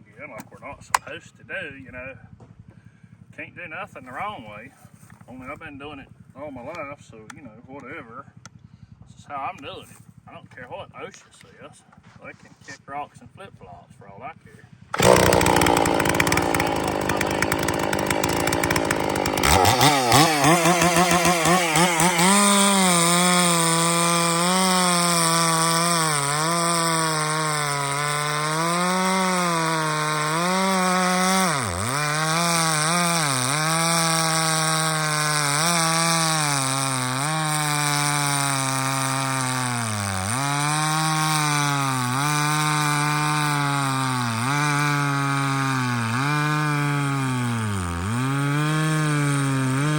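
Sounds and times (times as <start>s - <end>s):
chainsaw cutting wood: 14.9s - 49.9s.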